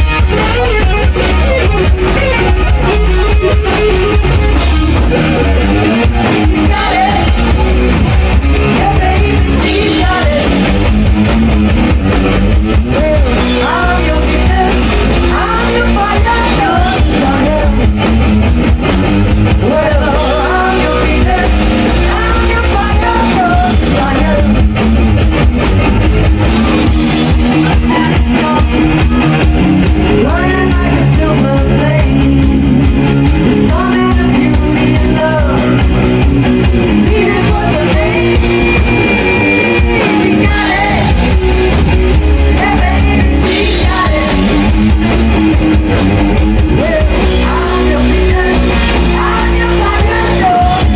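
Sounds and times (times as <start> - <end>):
bass guitar: 0.0 - 50.9
drum kit: 0.0 - 50.9
electric guitar: 0.0 - 50.9
person singing: 6.1 - 7.8, 8.6 - 10.8, 12.8 - 18.0, 19.6 - 24.8, 27.4 - 36.1, 36.9 - 41.5, 42.4 - 44.9, 46.7 - 50.9.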